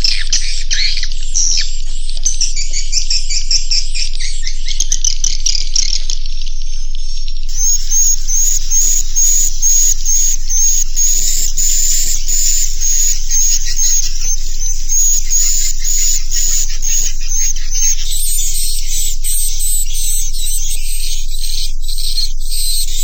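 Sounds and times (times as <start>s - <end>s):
high rasping bird chirps: 7.5s - 23.0s.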